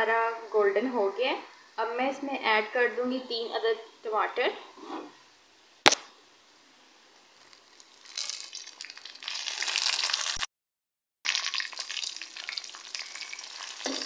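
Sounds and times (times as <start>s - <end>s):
tomatoes sizzling in hot oil: 5.3s - 10.5s, 11.2s - 14.0s.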